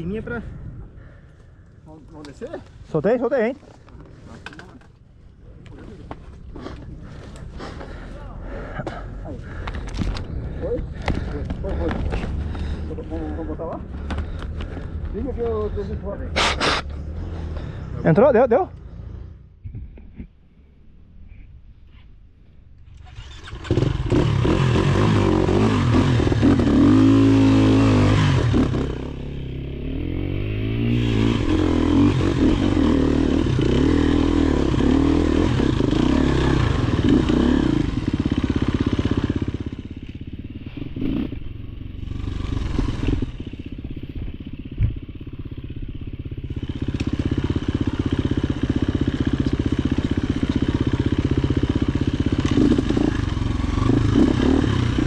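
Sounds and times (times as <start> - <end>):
dirt bike engine revving: 23.0 - 55.0.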